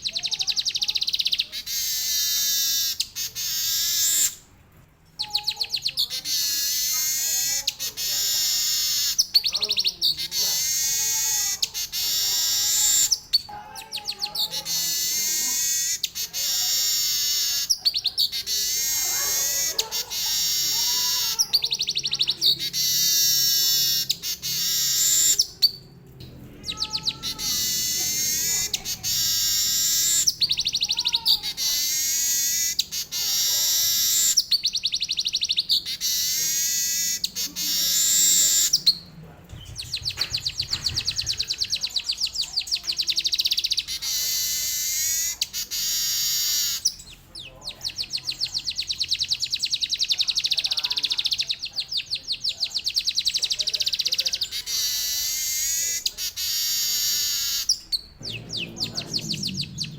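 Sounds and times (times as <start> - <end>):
bird singing trills and warbles: 0.0 - 4.5, 5.1 - 59.9.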